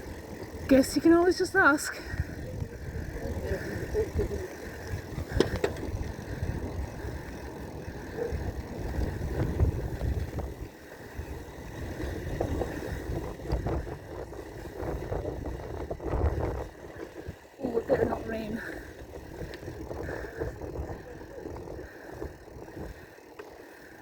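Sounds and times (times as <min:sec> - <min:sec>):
wind buffeting the microphone: 0:00.0 - 0:23.2
bicycle rattling: 0:00.0 - 0:24.0
road rumble: 0:00.0 - 0:24.0.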